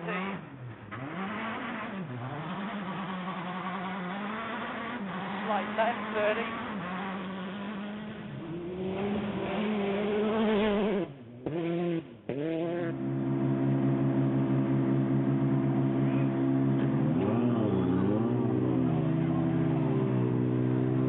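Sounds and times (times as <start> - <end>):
rally car engine revving: 0.0 - 21.0.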